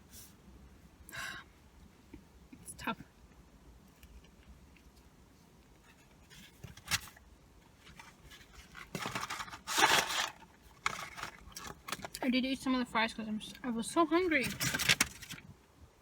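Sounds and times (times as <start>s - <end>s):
paper packaging rustling: 5.9s - 12.2s, 14.2s - 15.5s.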